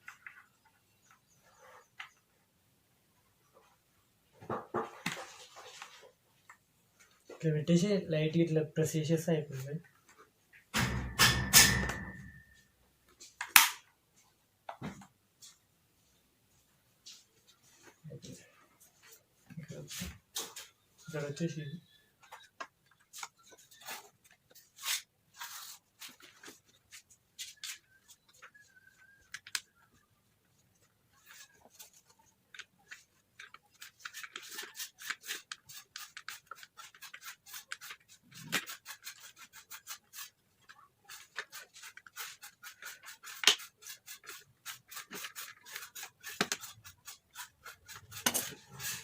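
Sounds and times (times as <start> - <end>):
rubbing and scratching on plastic: 3.5 - 7.4, 15.4 - 49.0.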